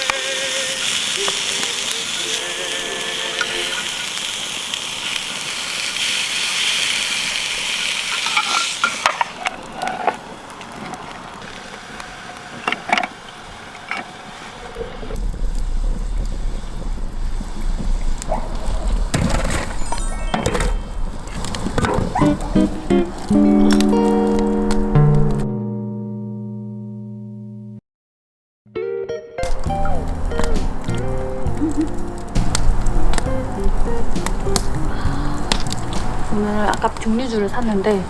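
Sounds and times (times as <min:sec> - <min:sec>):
meat sizzling on a grill: 0:00.0 - 0:10.0
low rumble: 0:14.8 - 0:23.3.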